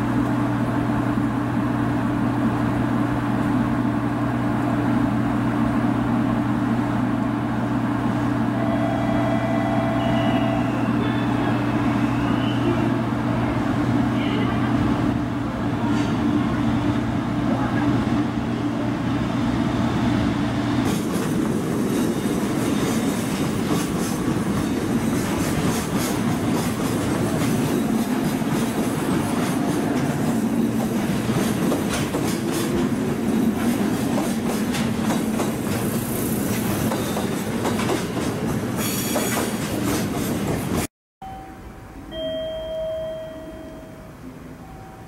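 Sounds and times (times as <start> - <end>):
train wheels squealing: 8.9 - 12.9, 36.9 - 37.4, 38.8 - 39.5
train wheels clacking over rail joints: 20.8 - 40.9.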